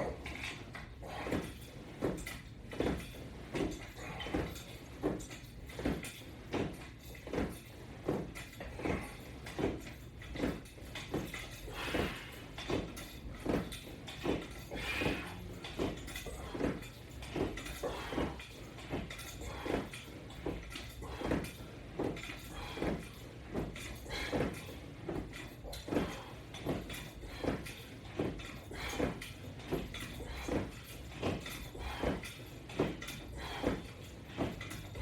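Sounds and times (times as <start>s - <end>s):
rhythmic exercise beats: 0.0s - 35.0s.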